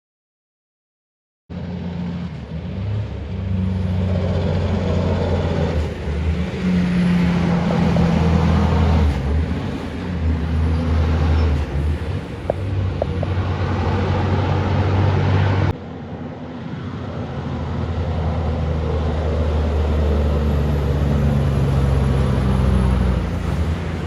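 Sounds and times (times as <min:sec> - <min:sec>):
truck diesel engine drone: 0:01.5 - 0:24.0.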